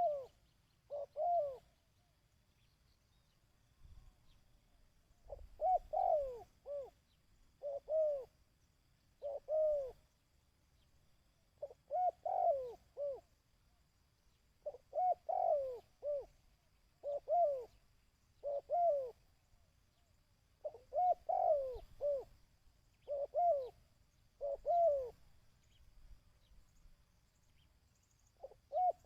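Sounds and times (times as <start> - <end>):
dove cooing: 0.0 - 1.8, 5.2 - 8.4, 9.2 - 10.1, 11.6 - 13.3, 14.6 - 16.4, 17.0 - 19.3, 20.6 - 22.4, 23.0 - 25.2, 28.3 - 29.0.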